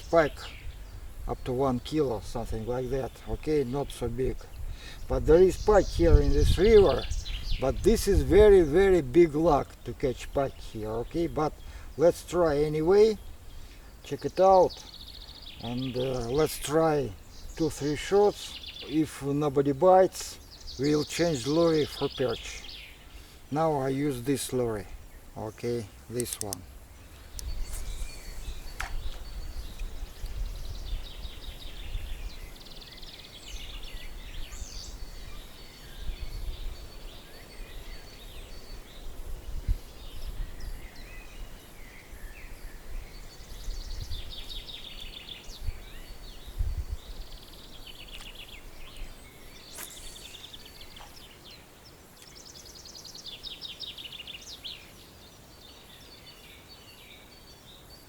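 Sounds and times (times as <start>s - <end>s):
wind buffeting microphone: 0.0s - 9.6s, 27.2s - 32.6s, 33.5s - 41.6s, 42.2s - 49.3s
songbirds singing: 0.0s - 58.0s.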